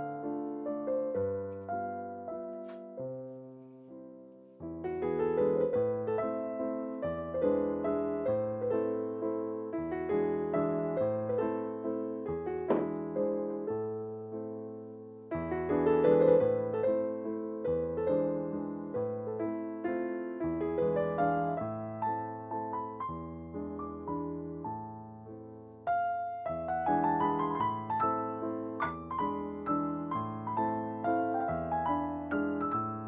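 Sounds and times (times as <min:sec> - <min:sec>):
solo piano piece: 0:00.0 - 0:33.0.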